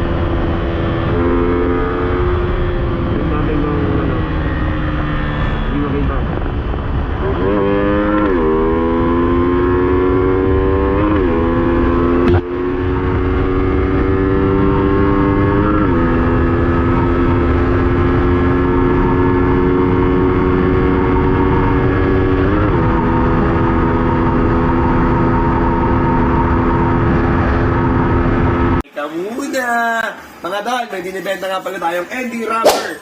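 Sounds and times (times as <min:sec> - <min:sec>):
wind rushing: 0:00.0 - 0:10.9
motorcycle engine at full throttle: 0:00.0 - 0:28.8.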